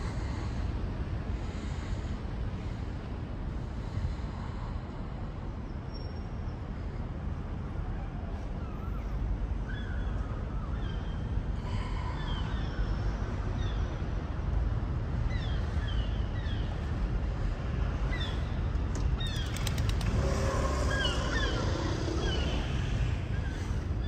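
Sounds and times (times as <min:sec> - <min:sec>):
steady low rumble: 0:00.0 - 0:07.8, 0:11.2 - 0:24.0
small birds chirping: 0:18.1 - 0:24.0.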